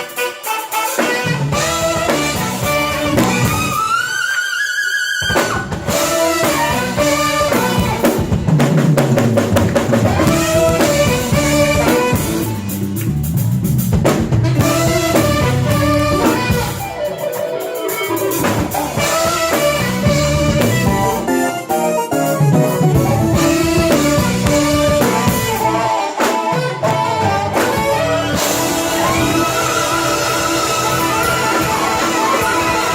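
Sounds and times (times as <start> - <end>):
drum kit: 0.0 - 4.2, 5.2 - 32.9
guitar: 0.0 - 4.4, 5.2 - 32.9
saxophone melody: 0.0 - 8.5, 9.8 - 32.9
keyboards: 0.0 - 32.9
bass: 1.0 - 4.1, 5.2 - 17.1, 18.1 - 26.0, 26.6 - 32.9.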